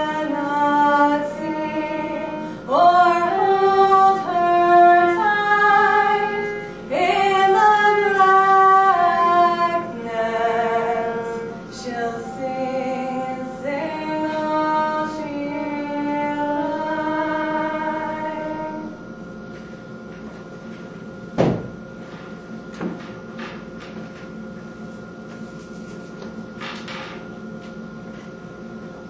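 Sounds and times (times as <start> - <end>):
woman singing slow melody: 0.0 - 19.1.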